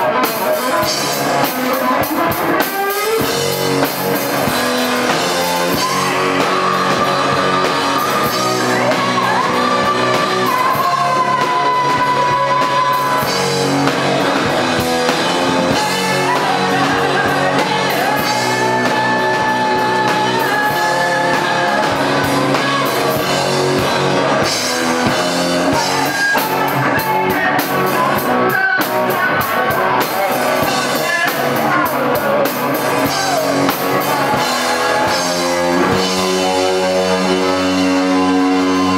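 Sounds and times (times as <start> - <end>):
drums: 0.0 - 38.9
electric guitar: 0.0 - 38.9
person singing: 0.0 - 38.9.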